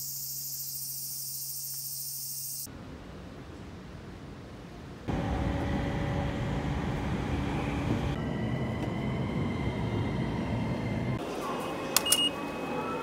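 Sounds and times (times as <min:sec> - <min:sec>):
station hum: 0:05.1 - 0:11.2
train rumble with whine: 0:05.1 - 0:13.0.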